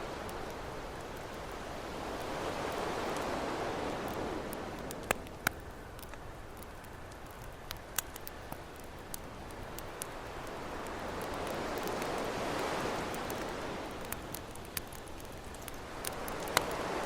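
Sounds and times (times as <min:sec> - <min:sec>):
ocean waves: 0:00.0 - 0:05.4, 0:09.7 - 0:17.0
campfire crackling and popping: 0:00.0 - 0:17.0.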